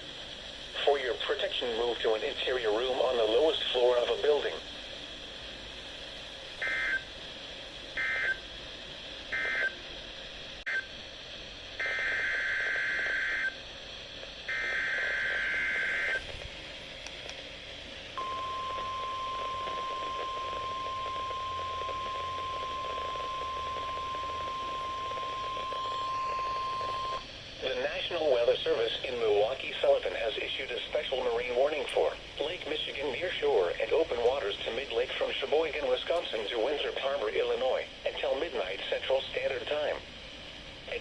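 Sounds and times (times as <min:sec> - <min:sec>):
steady warning alarm tone: 0:06.6 - 0:07.2, 0:08.0 - 0:08.5, 0:09.3 - 0:09.8, 0:11.8 - 0:13.6, 0:14.4 - 0:16.3, 0:18.2 - 0:30.3
raspy data bursts: 0:14.4 - 0:16.4, 0:18.2 - 0:40.0.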